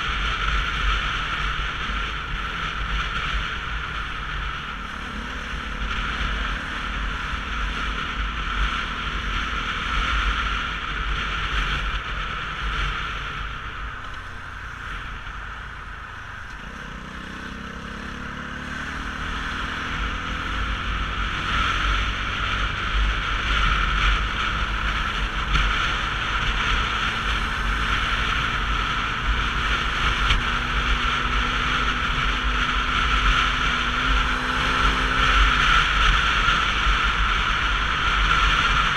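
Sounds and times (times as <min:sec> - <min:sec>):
motorcycle engine: 0:00.0 - 0:38.9
road noise: 0:00.0 - 0:38.9.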